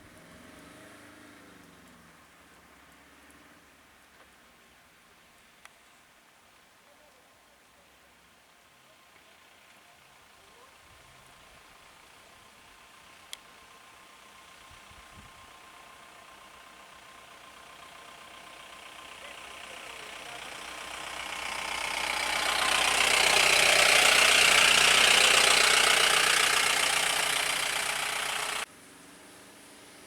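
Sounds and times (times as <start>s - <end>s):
vehicle passing by: 0.0s - 3.6s, 15.6s - 30.0s.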